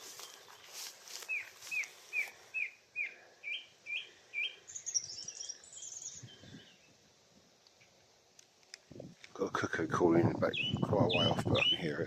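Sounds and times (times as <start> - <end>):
high bird twittering: 1.3 - 6.8, 10.4 - 12.0
song thrush whistling: 1.3 - 6.9.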